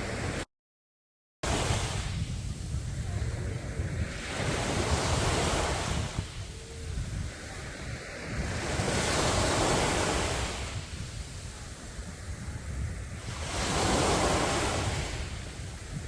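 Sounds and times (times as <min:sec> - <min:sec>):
wind rumble on microphone: 0:00.0 - 0:00.4, 0:01.4 - 0:16.0
sea waves breaking on beach: 0:00.0 - 0:00.5, 0:01.4 - 0:16.0.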